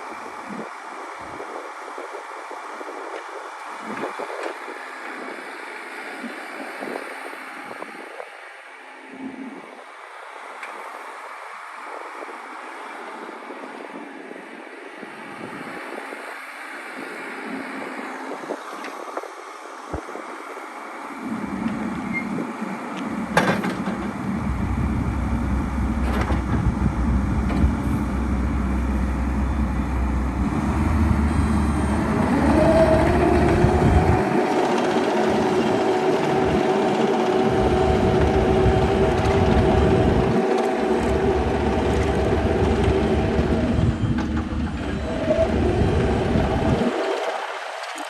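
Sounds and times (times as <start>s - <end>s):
excavator diesel engine running: 21.3s - 47.8s.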